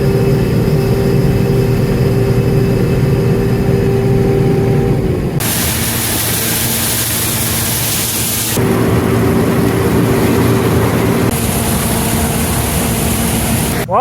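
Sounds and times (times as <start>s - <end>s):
farm machinery engine running: 0.0s - 14.0s
loud steady hiss: 5.4s - 13.9s.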